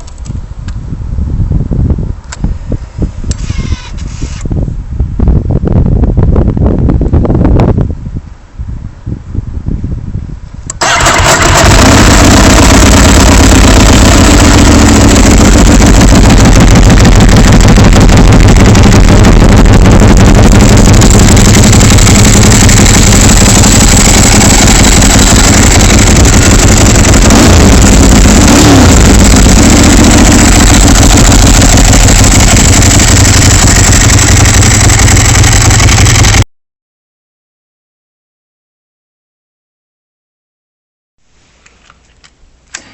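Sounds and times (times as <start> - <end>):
motorcycle engine starting and idling: 10.7 - 36.4.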